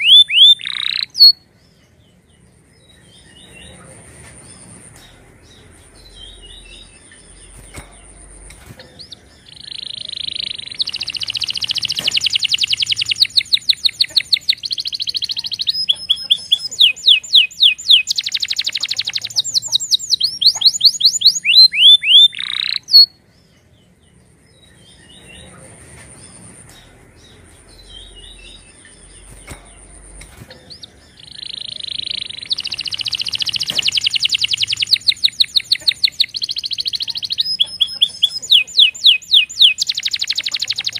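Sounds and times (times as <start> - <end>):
canary singing trills: 0.0 - 40.9
soft bird chirps: 0.0 - 40.9.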